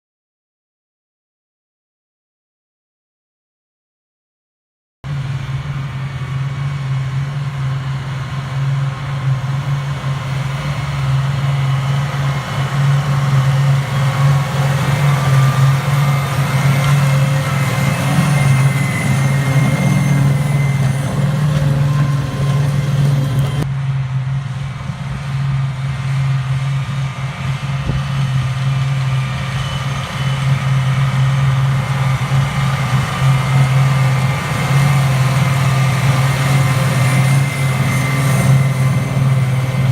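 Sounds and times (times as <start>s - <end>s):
machinery noise: 5.1s - 39.9s
tractor diesel engine drone: 5.1s - 39.9s.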